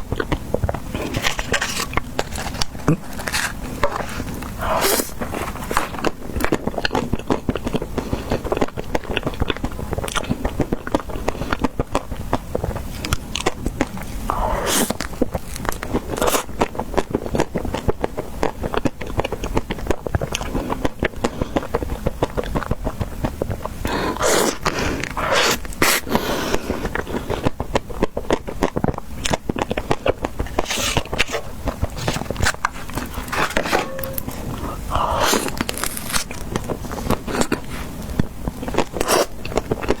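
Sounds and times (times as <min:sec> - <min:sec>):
chewing ice cream: 0:00.0 - 0:40.0
crunching bites: 0:29.2 - 0:37.6.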